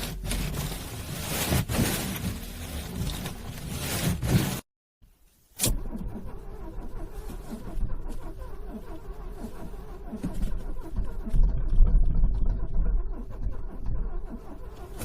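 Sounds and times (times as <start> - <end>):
car starter cranking engine: 5.6 - 15.0.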